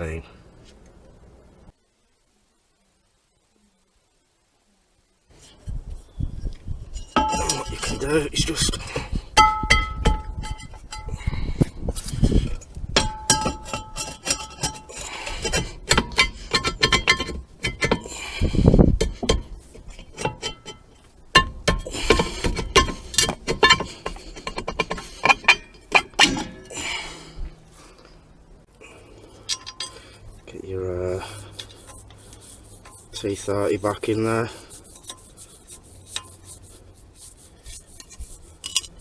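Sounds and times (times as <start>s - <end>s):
metal car parts clinking: 7.0s - 8.2s, 9.4s - 11.3s, 13.0s - 18.1s, 19.0s - 26.7s, 29.3s - 30.2s, 37.6s - 39.0s.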